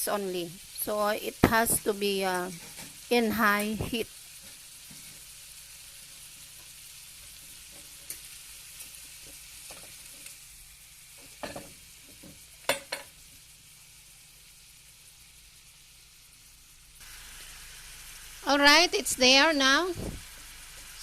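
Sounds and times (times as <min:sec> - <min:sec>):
scallops sizzling in a pan: 0:00.0 - 0:21.0.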